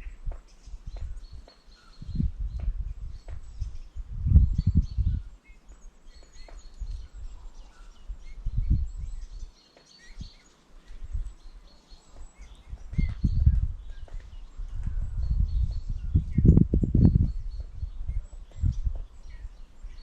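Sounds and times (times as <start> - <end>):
small birds chirping: 0.0 - 20.0
loud low thuds and rumbles: 2.1 - 3.5.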